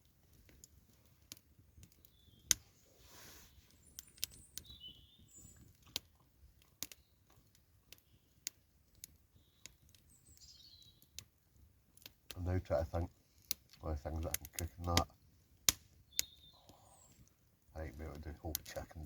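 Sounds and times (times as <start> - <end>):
wood fire crackling and popping: 0.0 - 2.8, 3.5 - 19.0
high bird chirps: 3.8 - 5.6, 10.2 - 11.0, 16.1 - 17.2.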